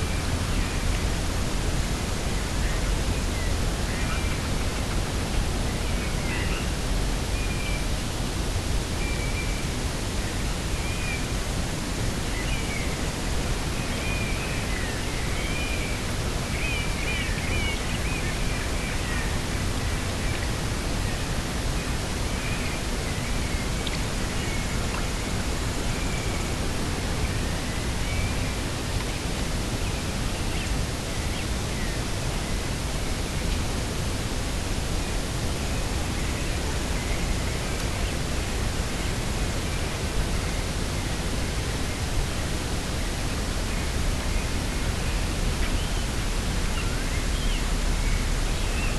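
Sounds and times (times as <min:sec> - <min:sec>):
rushing wind with low rumble: 0:00.0 - 0:48.9.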